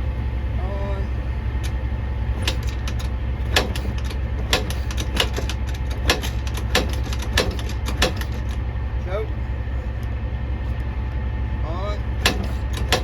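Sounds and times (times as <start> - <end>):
steady low hum: 0.0 - 13.0
quad kick starter clacking: 1.6 - 8.7, 12.1 - 13.0.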